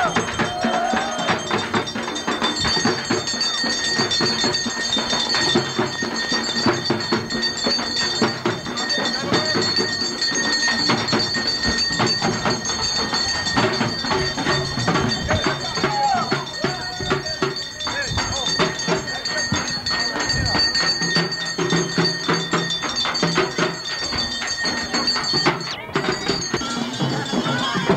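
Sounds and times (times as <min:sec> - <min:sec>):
fast drumming: 0:00.0 - 0:27.9
high ringing tones: 0:00.0 - 0:27.9.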